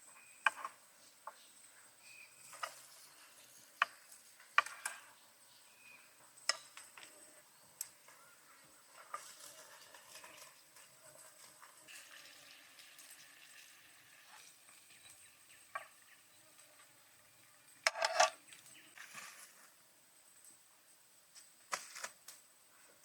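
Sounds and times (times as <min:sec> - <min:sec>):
utensil clatter: 0:17.8 - 0:18.4
utensils clicking and scraping: 0:17.8 - 0:18.4.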